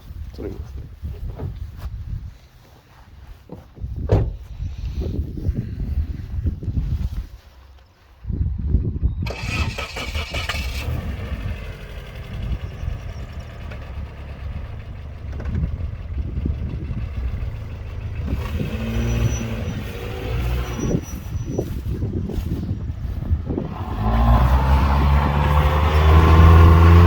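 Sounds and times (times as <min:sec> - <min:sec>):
car engine revving: 0:09.3 - 0:21.8, 0:23.4 - 0:27.0
low rumble: 0:10.5 - 0:27.0.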